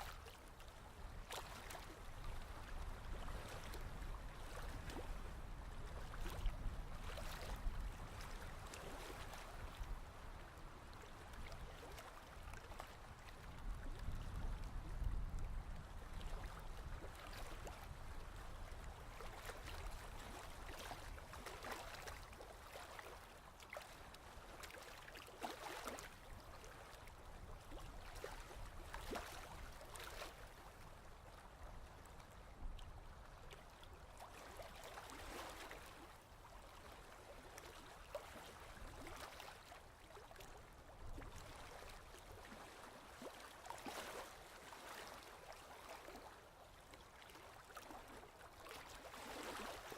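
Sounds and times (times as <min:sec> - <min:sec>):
fizzing crackles of receding water: 0:00.0 - 0:49.9.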